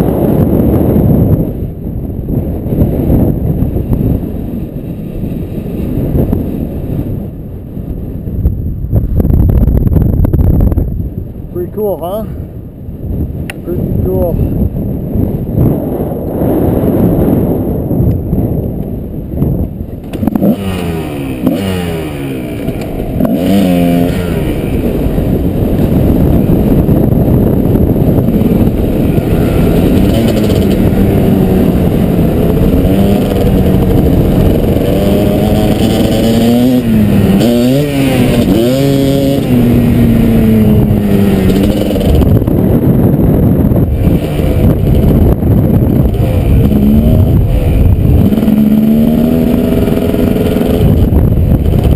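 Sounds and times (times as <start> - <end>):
dirt bike engine revving: 20.0 - 51.9.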